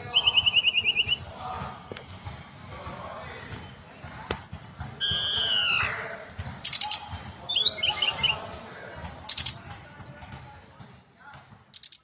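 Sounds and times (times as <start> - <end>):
robin singing: 0.0 - 1.6, 4.3 - 9.6.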